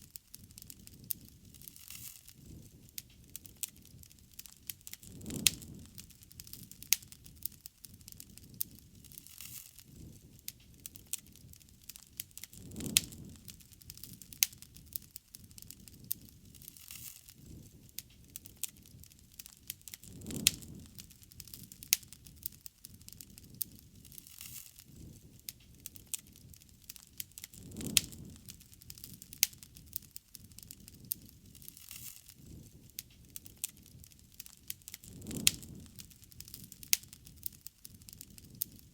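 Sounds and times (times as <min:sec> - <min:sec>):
loud snaps of burning wood: 0:00.0 - 0:38.9
low flutter of flames: 0:00.0 - 0:38.9
low rush of fire: 0:00.0 - 0:38.9
wood fire crackling: 0:00.0 - 0:38.9.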